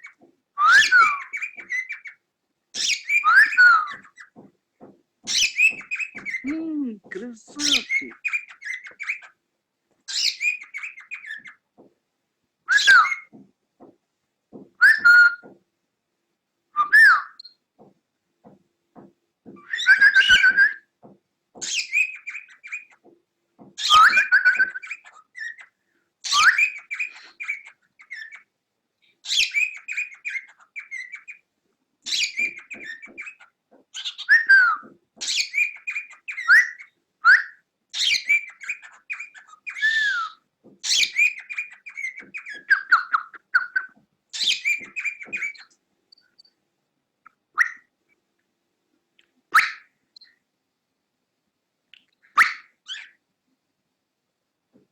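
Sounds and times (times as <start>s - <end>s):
cockatiel chirping and whistling: 0.6s - 2.1s, 2.8s - 4.2s, 10.1s - 11.6s, 12.7s - 13.3s, 19.6s - 20.8s, 21.6s - 23.0s, 23.8s - 25.7s, 26.3s - 28.4s, 29.2s - 31.4s, 32.1s - 45.7s, 47.6s - 47.8s.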